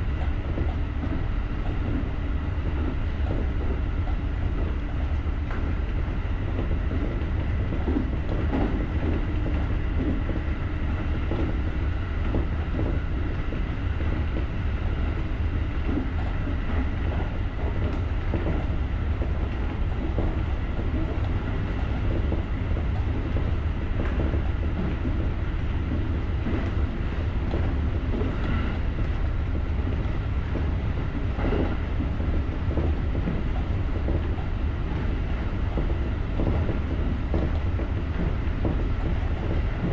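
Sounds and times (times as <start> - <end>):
faint steady whine: 0.0 - 39.9
train wheels rumbling on rails: 0.0 - 39.9
clicks over rail joints: 15.8 - 39.9.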